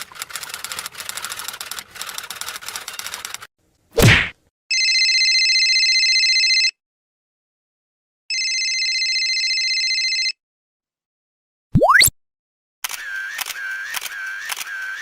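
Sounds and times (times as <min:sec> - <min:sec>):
telephone ringing: 0:04.7 - 0:06.8, 0:08.3 - 0:10.4.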